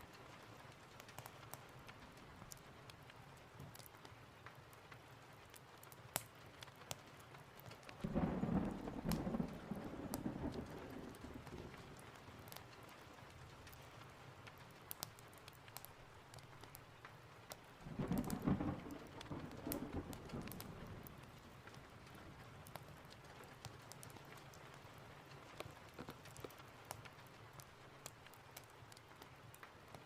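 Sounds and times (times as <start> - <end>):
steady rain: 0.0 - 30.0
thunder rumbling: 8.0 - 12.6, 17.8 - 22.8.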